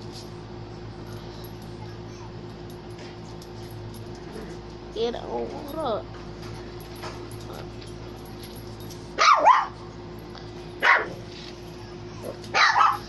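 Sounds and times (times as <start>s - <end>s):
dog barking: 9.2s - 9.8s, 10.8s - 11.2s, 12.2s - 13.0s.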